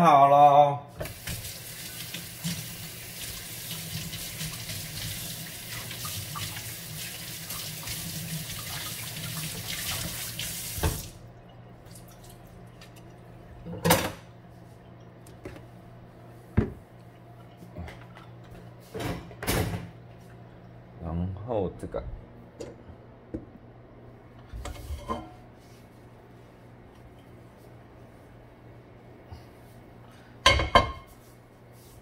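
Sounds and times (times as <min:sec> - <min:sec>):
tap running into sink: 0:09.9 - 0:11.1.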